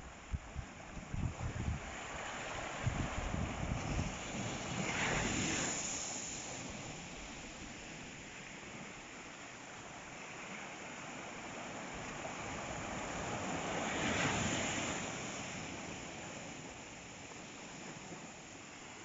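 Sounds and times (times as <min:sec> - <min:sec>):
sea waves washing on shore: 0:00.0 - 0:19.0.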